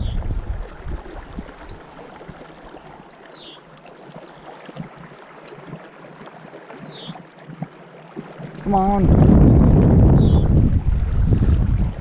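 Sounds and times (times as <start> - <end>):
wind buffeting microphone: 0.0 - 1.9, 8.5 - 12.0
flowing river water: 0.0 - 12.0.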